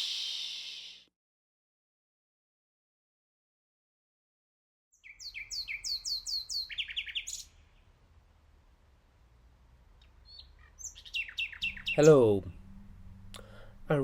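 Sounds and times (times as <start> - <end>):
nightingale singing: 0.0 - 1.1, 5.0 - 7.9, 10.0 - 13.5.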